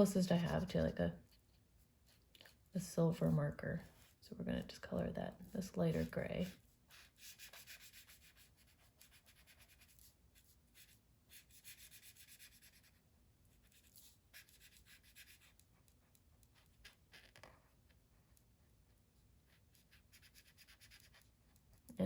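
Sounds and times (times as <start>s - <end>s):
marker scratching on paper: 5.5s - 17.7s, 19.5s - 21.6s.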